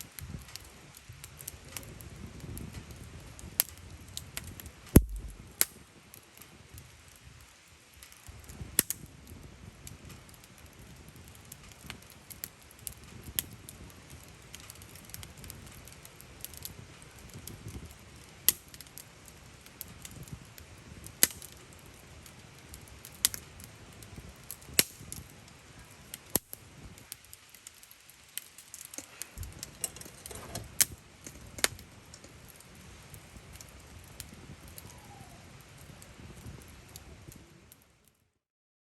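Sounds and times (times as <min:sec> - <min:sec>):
campfire crackling: 0:00.0 - 0:38.4
low steady hiss: 0:00.0 - 0:38.4
sharp pops from fire: 0:00.1 - 0:37.1.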